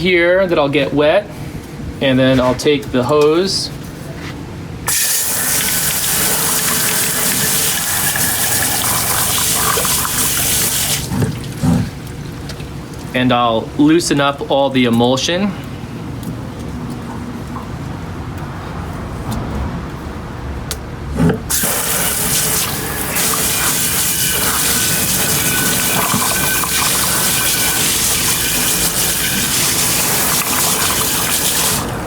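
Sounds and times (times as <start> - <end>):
water spraying into metal trough: 4.9 - 13.1, 21.5 - 32.0.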